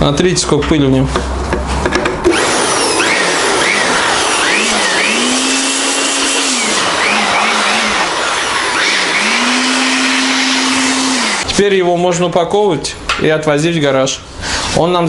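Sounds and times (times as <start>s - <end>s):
electric blower blasting air: 2.2s - 11.5s.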